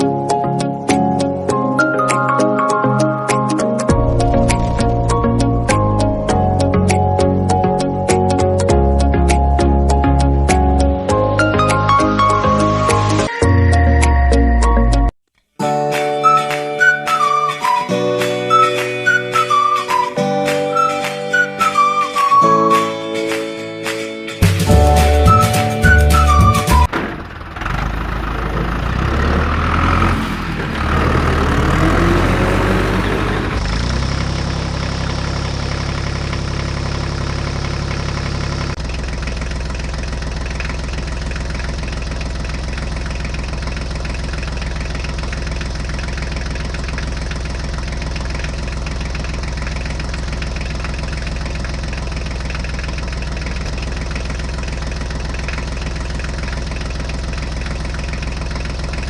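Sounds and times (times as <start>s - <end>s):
tractor engine idling: 3.8s - 10.5s, 24.4s - 59.0s.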